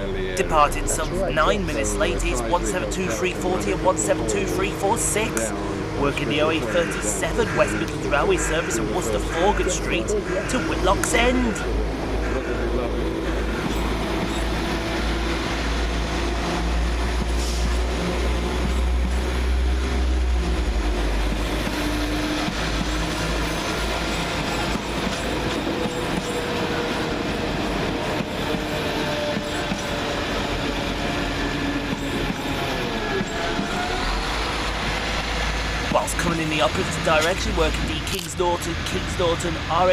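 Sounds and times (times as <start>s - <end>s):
heavy low rumble: 0.0s - 25.0s
diesel train engines running: 0.0s - 39.9s.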